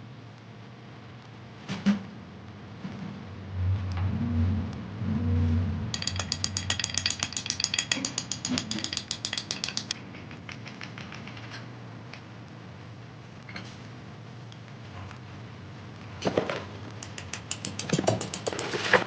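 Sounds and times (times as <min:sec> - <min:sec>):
scattered clicks and taps: 0:05.9 - 0:12.2, 0:16.9 - 0:19.0
sharp metallic clicks: 0:06.0 - 0:11.5, 0:17.0 - 0:19.0.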